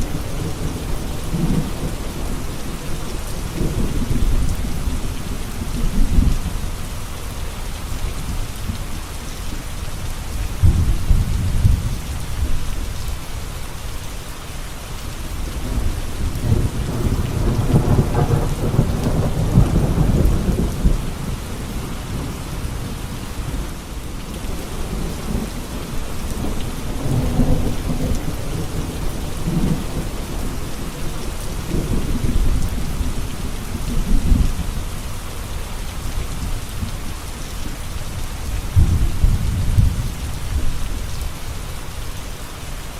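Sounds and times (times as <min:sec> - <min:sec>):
rain falling: 0:00.0 - 0:42.9
rolling thunder: 0:10.6 - 0:12.6, 0:15.6 - 0:23.8, 0:24.4 - 0:34.8, 0:38.4 - 0:41.2.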